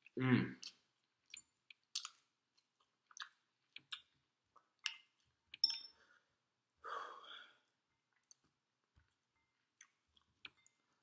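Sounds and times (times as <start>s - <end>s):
person chewing food: 0.0s - 5.7s, 8.0s - 11.0s.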